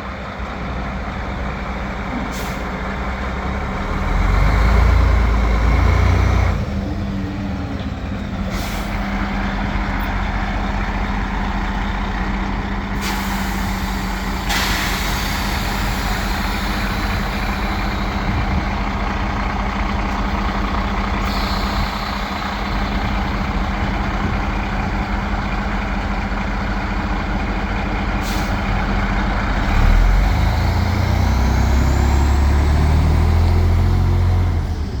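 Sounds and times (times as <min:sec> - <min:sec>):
diesel engine idling: 0:00.0 - 0:35.0
air brake hisses: 0:02.1 - 0:02.8, 0:08.4 - 0:09.1, 0:13.0 - 0:18.4, 0:21.2 - 0:23.4, 0:28.2 - 0:28.7.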